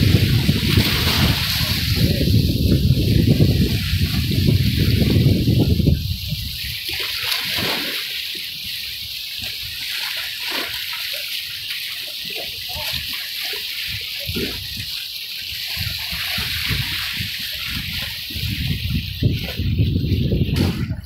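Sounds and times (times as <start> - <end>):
wind buffeting microphone: 0.0 - 7.8, 13.9 - 21.0
sea water splashing: 0.0 - 21.0.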